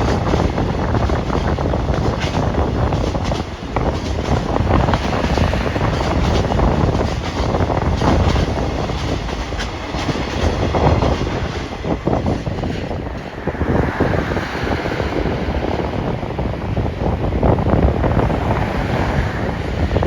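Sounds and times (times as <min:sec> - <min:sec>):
train wheels clattering: 0:00.0 - 0:13.4.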